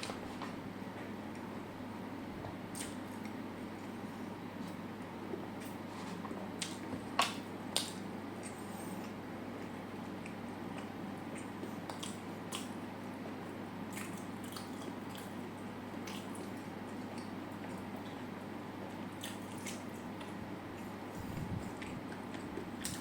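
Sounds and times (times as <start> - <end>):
wet chewing: 4.6 - 18.3, 19.1 - 23.0.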